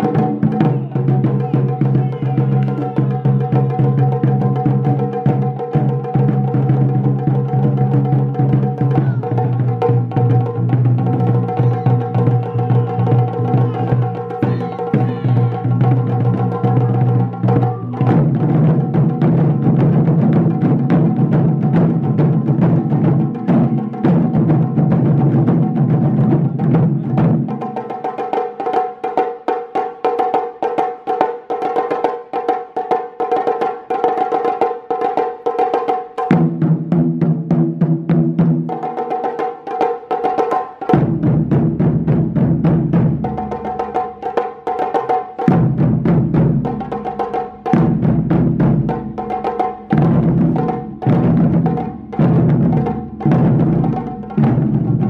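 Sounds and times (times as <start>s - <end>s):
deep drums pounding: 0.0s - 27.8s, 36.3s - 38.8s, 40.9s - 44.2s, 45.4s - 55.0s.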